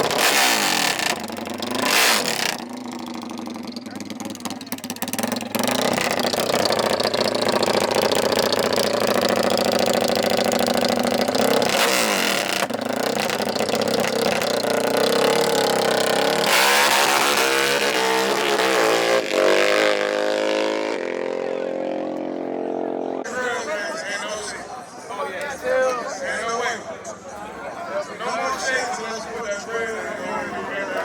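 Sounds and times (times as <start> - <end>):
dirt bike and atv engines revving: 0.0 - 23.6.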